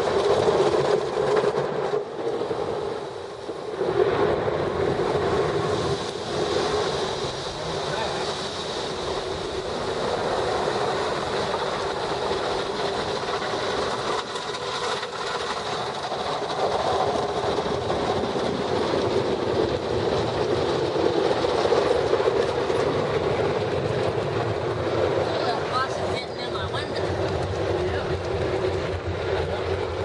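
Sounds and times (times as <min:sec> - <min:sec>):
spinning car wash brushes: 0:05.1 - 0:30.0.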